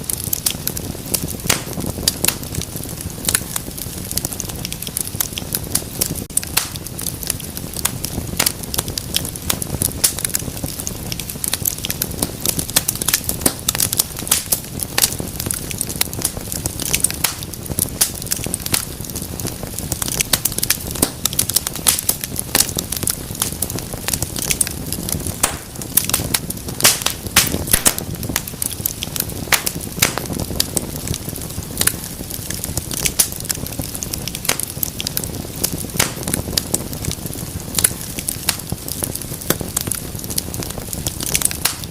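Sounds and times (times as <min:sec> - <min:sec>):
wood fire crackling in fireplace: 0:00.0 - 0:41.9.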